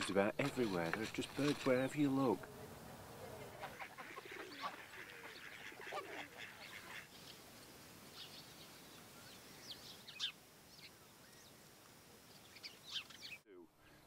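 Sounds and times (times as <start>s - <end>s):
flock of birds calling: 0.0s - 7.5s
high bird chirps: 8.1s - 11.6s, 12.3s - 13.5s.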